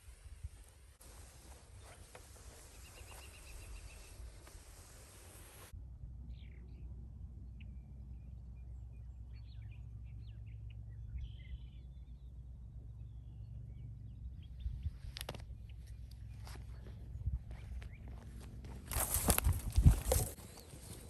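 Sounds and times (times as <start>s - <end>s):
bird chirps: 1.8s - 4.3s, 7.5s - 18.2s.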